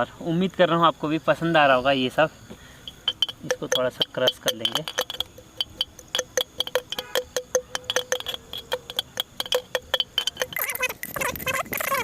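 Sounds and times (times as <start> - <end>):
muddler knocking against glass: 2.9 - 12.0.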